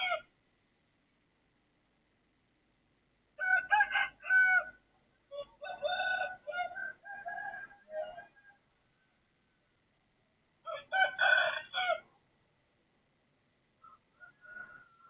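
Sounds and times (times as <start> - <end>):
rooster crowing: 3.4 - 8.6, 10.7 - 12.0, 13.8 - 15.0.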